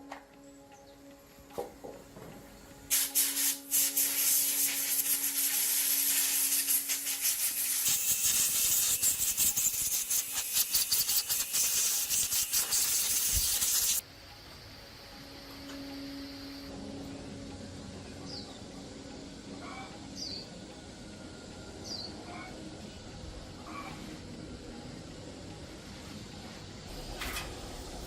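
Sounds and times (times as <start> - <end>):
scratchy abrasive scrubbing: 3.8 - 14.0.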